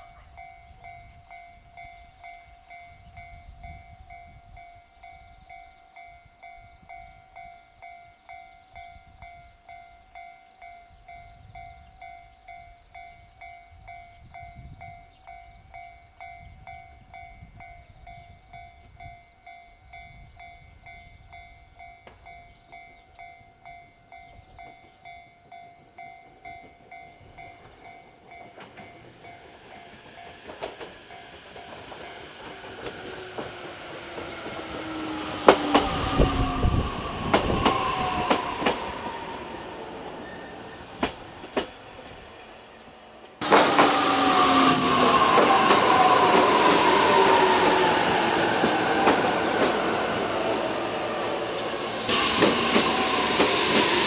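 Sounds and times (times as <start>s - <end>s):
train wheels clicking over rail joints: 26.2s - 42.0s, 43.2s - 54.0s
train motor whine: 30.2s - 54.0s.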